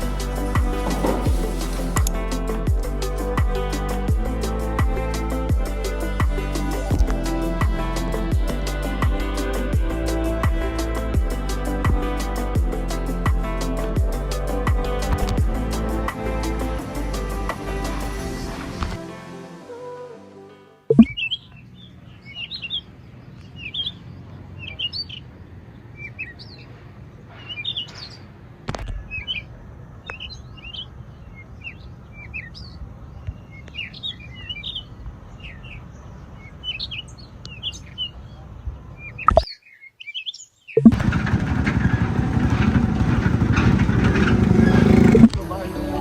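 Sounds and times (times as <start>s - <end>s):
birds chirping: 20.9s - 41.0s.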